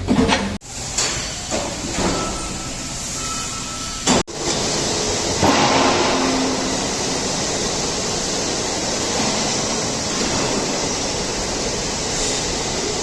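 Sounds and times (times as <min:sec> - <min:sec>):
excavator running: 0:04.3 - 0:13.0.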